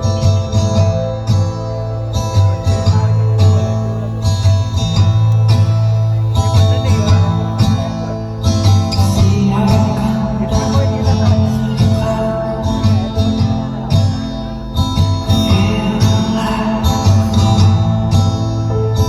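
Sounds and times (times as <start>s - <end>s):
loud music with heavy bass: 0.0s - 19.0s.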